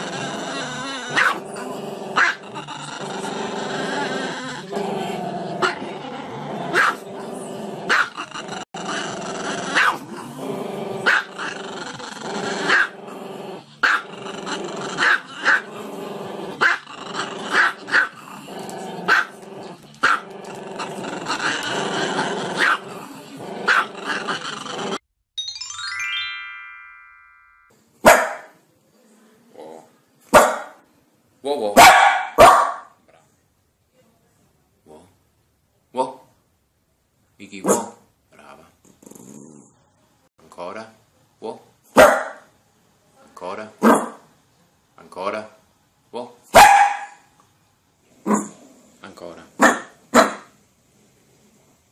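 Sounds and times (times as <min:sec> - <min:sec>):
dog growling: 0:00.0 - 0:25.0, 0:38.9 - 0:39.8, 0:48.1 - 0:49.0
dog barking: 0:01.2 - 0:01.4, 0:06.7 - 0:07.0, 0:07.9 - 0:08.1, 0:09.8 - 0:10.0, 0:13.8 - 0:14.0, 0:19.1 - 0:19.3, 0:22.6 - 0:22.8, 0:23.7 - 0:23.9, 0:28.0 - 0:28.6, 0:30.3 - 0:30.8, 0:31.8 - 0:33.0, 0:37.6 - 0:38.0, 0:42.0 - 0:42.5, 0:43.8 - 0:44.2, 0:46.5 - 0:47.3, 0:49.6 - 0:50.5
background music: 0:25.4 - 0:27.7
falling series of tones: 0:25.4 - 0:27.7.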